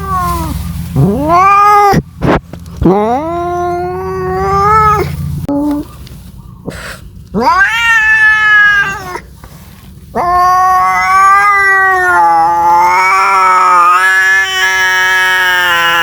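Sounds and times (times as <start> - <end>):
cat yowling: 0.0 - 2.1, 2.8 - 5.1, 7.4 - 9.3, 10.1 - 16.0.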